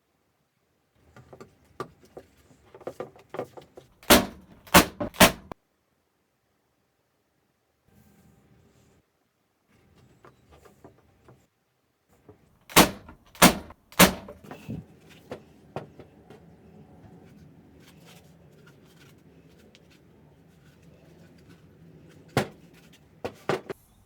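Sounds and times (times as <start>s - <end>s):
loud sharp knocks: 4.1s - 5.6s, 12.7s - 14.4s.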